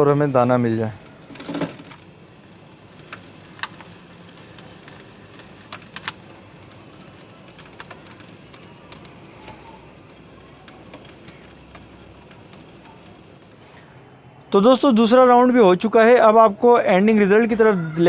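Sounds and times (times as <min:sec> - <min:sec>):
falling grains ticking: 0:00.0 - 0:13.7
seed cleaning machine hissing: 0:00.0 - 0:13.9.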